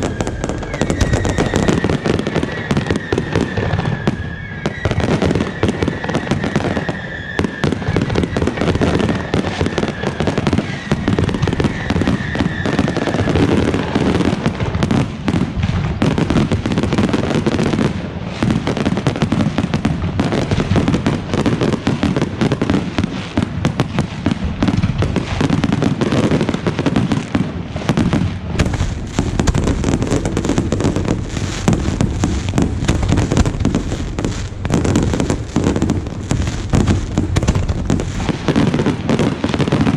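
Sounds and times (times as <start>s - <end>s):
fireworks bangs and crackling: 0.0s - 39.9s
thin whistle: 0.2s - 5.0s.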